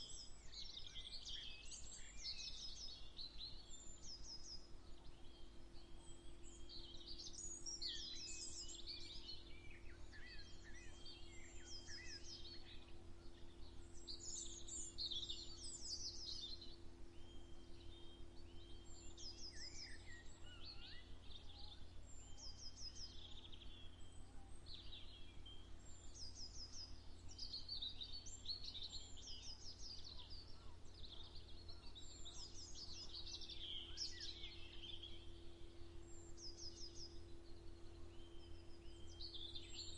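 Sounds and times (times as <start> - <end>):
low steady hum: 0.0 - 39.9
birds chirping and trilling: 26.2 - 39.9.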